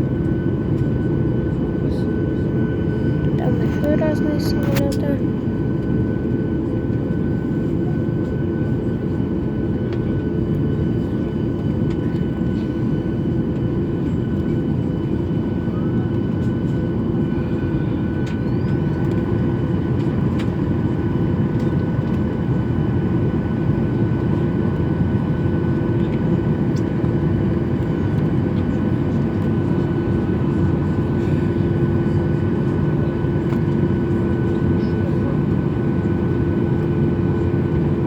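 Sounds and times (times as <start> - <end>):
low jet engine rumble: 0.0 - 38.0.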